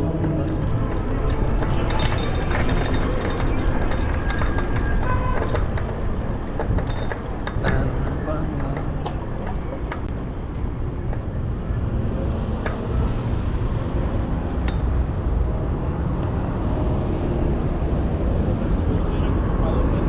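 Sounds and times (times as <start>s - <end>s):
road and traffic rumble: 0.0s - 20.0s.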